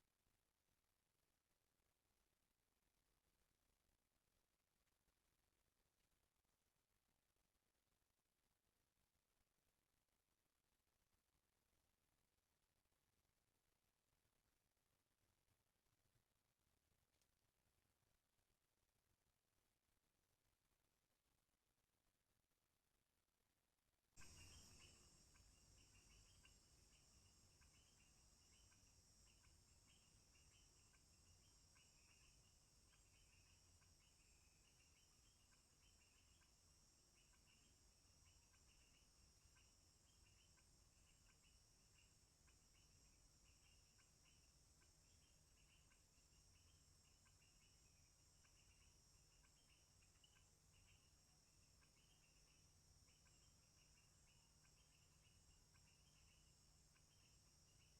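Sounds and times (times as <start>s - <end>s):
insect chirps: 24.2s - 57.9s
insects trilling drone: 24.2s - 57.9s.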